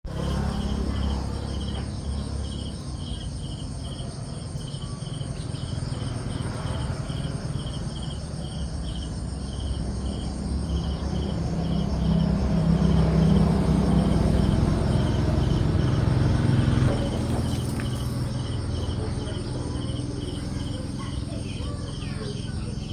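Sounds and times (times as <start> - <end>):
insect chirping: 0.1 - 22.9.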